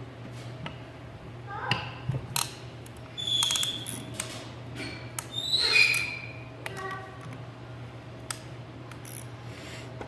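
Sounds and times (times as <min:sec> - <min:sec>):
high-pitched metal squeaks: 0:03.2 - 0:04.1, 0:05.3 - 0:06.4.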